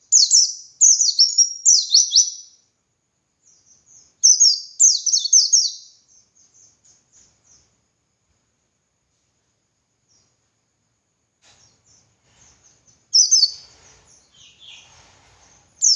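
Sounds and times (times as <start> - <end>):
bird twittering song: 0.0 - 2.6, 3.4 - 7.8, 10.0 - 10.5, 11.5 - 15.9.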